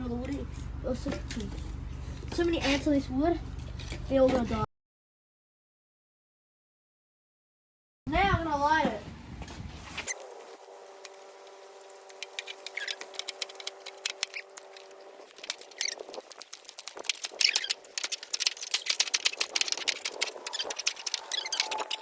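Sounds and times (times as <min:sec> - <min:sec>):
steady hum: 0:09.1 - 0:22.0
flint and steel scraping: 0:09.8 - 0:22.0.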